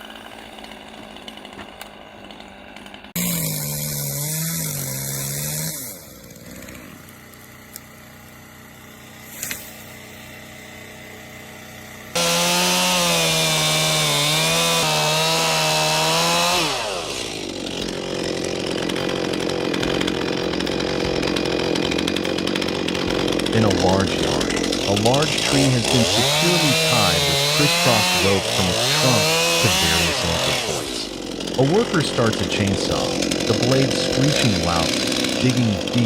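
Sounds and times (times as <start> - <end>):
chainsaw cutting: 0.0 - 36.0
steady rough noise: 17.4 - 36.0.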